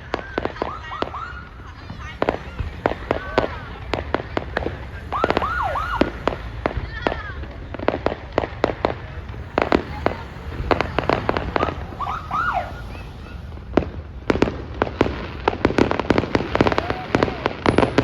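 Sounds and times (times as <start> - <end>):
fireworks bangs and cracks: 0.0 - 18.0
low rumble: 1.0 - 17.6.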